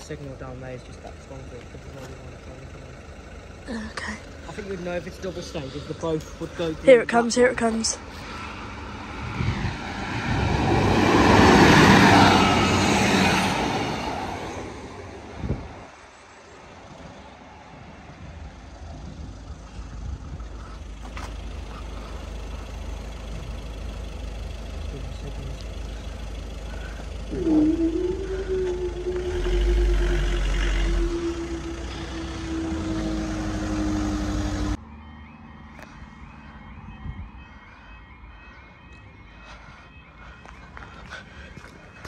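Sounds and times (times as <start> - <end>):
train passing at speed: 8.3 - 16.0
steady low rumble: 18.1 - 34.8
steady tone: 27.3 - 34.8.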